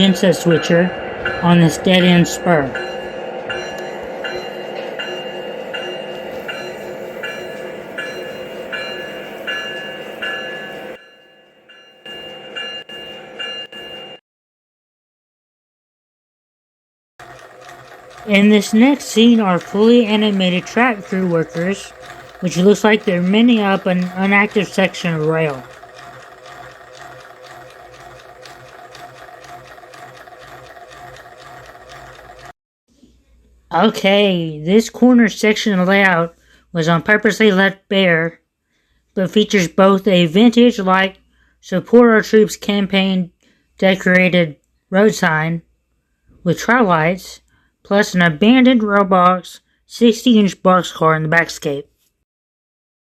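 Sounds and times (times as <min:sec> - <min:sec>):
locomotive bell ringing: 0:00.0 - 0:14.2, 0:17.2 - 0:32.5
diesel engine running: 0:17.2 - 0:32.5
rapid mechanical ticks: 0:17.2 - 0:32.6
small electric motor whirring: 0:17.2 - 0:32.6.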